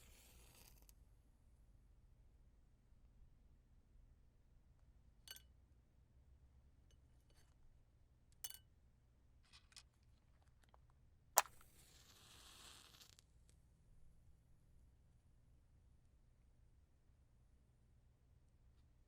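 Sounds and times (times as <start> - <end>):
matchbox clicks and taps: 11.4 - 12.7
match struck and flaring: 11.4 - 13.4.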